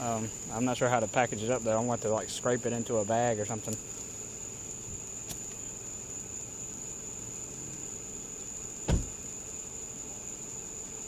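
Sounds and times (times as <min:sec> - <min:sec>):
crickets droning: 0:00.0 - 0:11.0
dull thump: 0:08.8 - 0:09.3.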